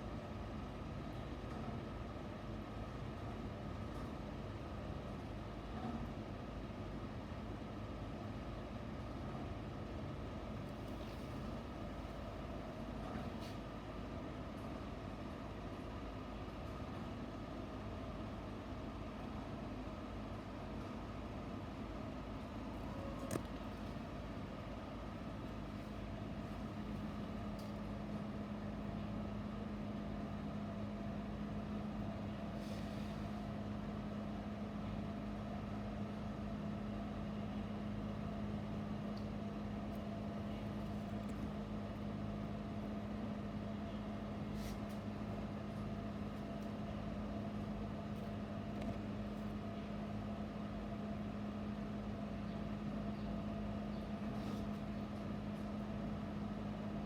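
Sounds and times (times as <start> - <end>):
steady mechanical hum: 0.0 - 57.0.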